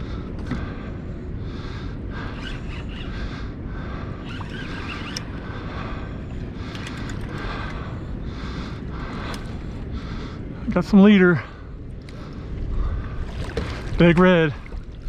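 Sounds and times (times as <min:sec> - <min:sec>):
wind rumbling on microphone: 0:00.0 - 0:15.0
light clicks: 0:04.3 - 0:05.4, 0:06.6 - 0:07.8.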